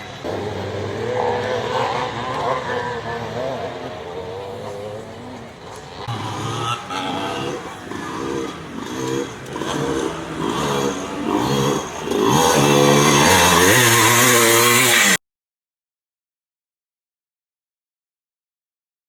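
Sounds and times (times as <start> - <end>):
motocross bike engines revving: 0.0 - 15.2.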